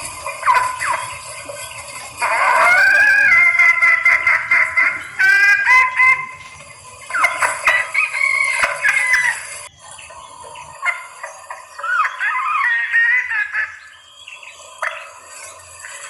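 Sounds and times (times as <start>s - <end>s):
hen calling: 0.0s - 16.0s.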